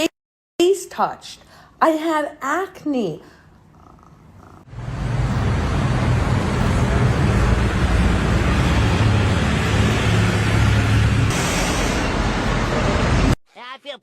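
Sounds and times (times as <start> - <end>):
loud mechanical rumble: 4.7 - 13.4.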